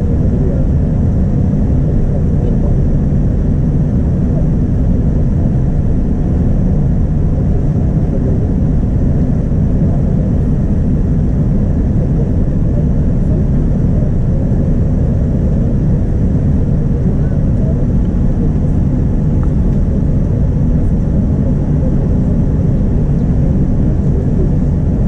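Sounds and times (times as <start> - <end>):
airplane cabin rumble: 0.0 - 25.0.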